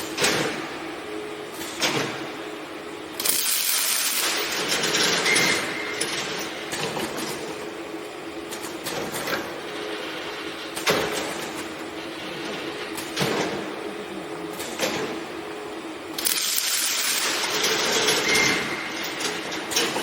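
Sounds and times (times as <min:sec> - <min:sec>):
welding machine hum: 0:00.0 - 0:20.0
mechanical clatter and knocks: 0:10.7 - 0:11.7, 0:17.2 - 0:20.0.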